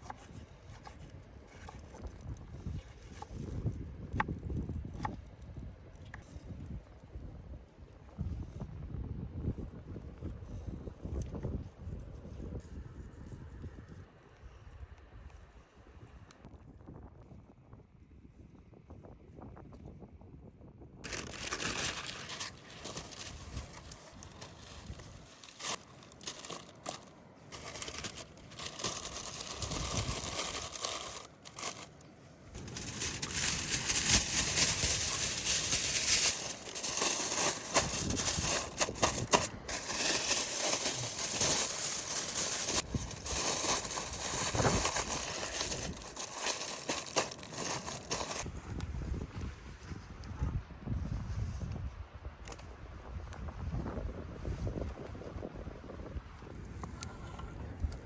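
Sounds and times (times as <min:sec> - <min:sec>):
crinkling and crumpling: 0:21.0 - 0:48.6.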